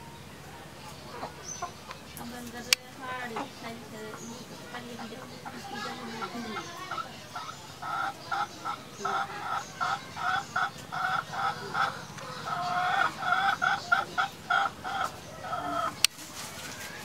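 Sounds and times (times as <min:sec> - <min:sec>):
bird clucking call: 0:00.0 - 0:16.9.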